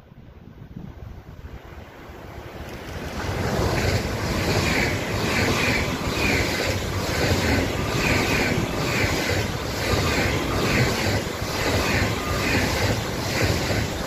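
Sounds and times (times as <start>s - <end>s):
high-speed train passing: 0.0s - 14.0s.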